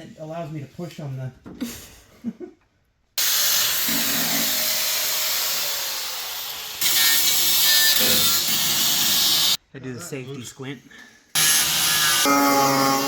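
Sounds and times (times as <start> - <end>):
hissing rasp: 3.2 - 9.6
power tool cutting: 3.2 - 9.6, 11.4 - 13.0.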